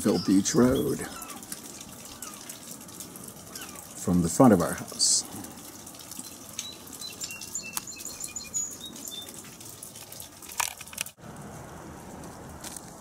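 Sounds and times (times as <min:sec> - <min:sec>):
small bird singing: 0:00.0 - 0:02.5, 0:03.5 - 0:04.0, 0:06.2 - 0:09.4
faint outdoor hiss: 0:00.0 - 0:13.0.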